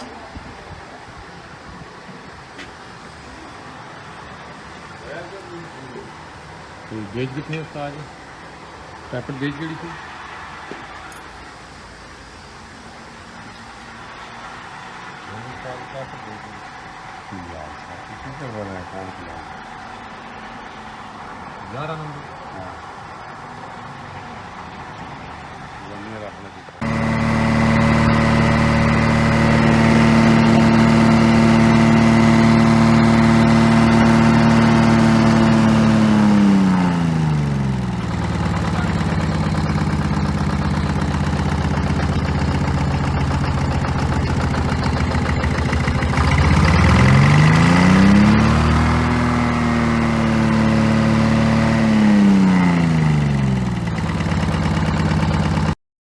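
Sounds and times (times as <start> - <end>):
diesel engine revving and idling: 26.8 - 55.8.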